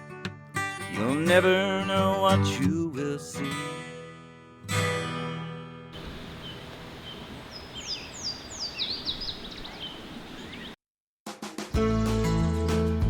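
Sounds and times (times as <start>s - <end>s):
acoustic guitar chord strummed: 0.0s - 6.8s
steady hiss: 6.0s - 10.7s
songbird whistling: 6.0s - 10.8s.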